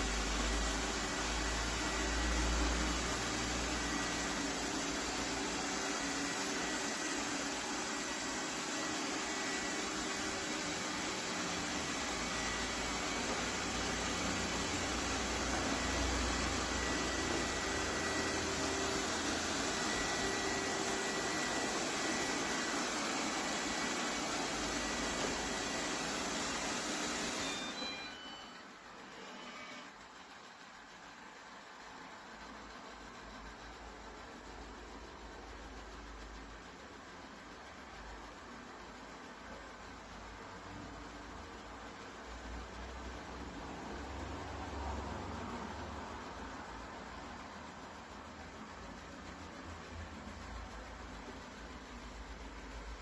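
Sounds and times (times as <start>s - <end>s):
robot vacuum running: 0.0s - 32.0s.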